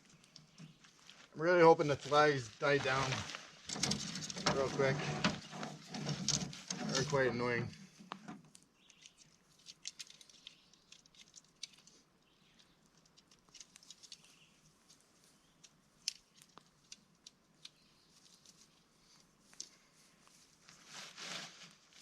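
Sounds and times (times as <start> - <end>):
tent fabric rustling and clicking: 15.6 - 22.0.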